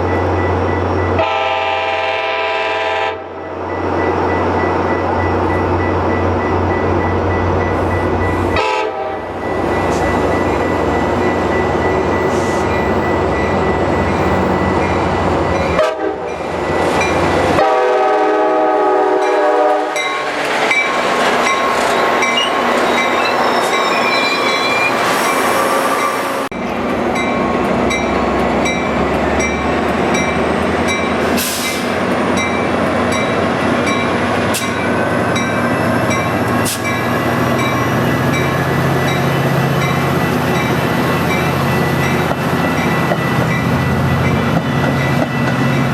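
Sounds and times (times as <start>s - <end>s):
train wheels rumbling on rails: 0.0s - 45.9s
train horn blast: 1.2s - 3.4s, 8.5s - 9.4s, 15.8s - 16.4s, 17.5s - 20.4s.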